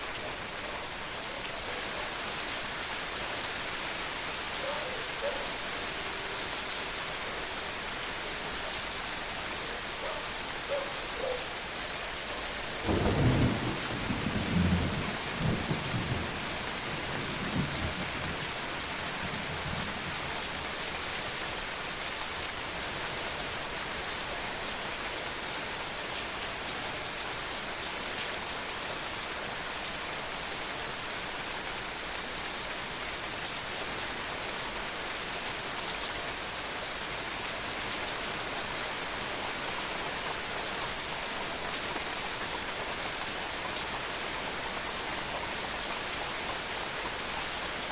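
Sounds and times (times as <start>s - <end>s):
steady rain falling: 0.0s - 47.9s
thunder rumbling: 12.8s - 18.2s.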